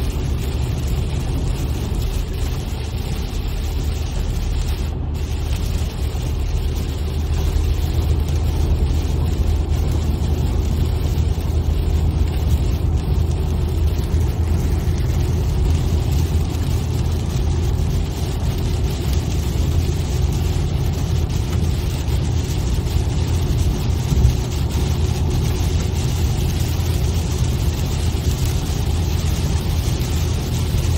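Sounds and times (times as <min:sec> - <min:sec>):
car engine rumble: 0:00.0 - 0:30.9
road noise: 0:00.0 - 0:30.9.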